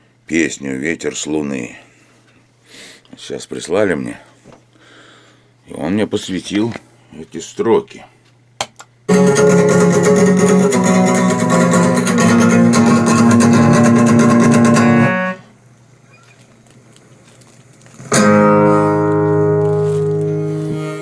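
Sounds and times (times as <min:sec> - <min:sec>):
guitar chord ringing: 0:09.1 - 0:15.5, 0:18.1 - 0:21.0
guitar strumming: 0:09.1 - 0:15.5, 0:17.9 - 0:21.0.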